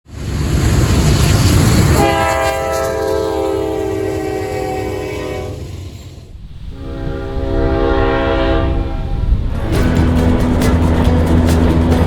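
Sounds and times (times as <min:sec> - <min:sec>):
locomotive rumble: 0:00.1 - 0:12.0
locomotive air horn: 0:01.9 - 0:06.0, 0:06.7 - 0:09.3.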